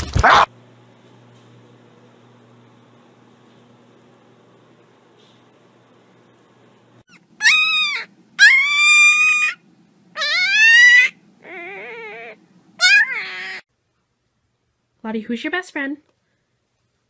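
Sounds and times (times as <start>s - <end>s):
puppy howling: 7.1s - 9.6s, 10.2s - 13.7s.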